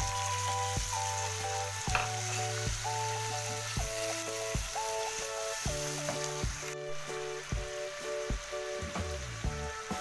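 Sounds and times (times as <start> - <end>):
background music with steady beat: 0.0 - 10.0
food sizzling in a frying pan: 0.0 - 10.0.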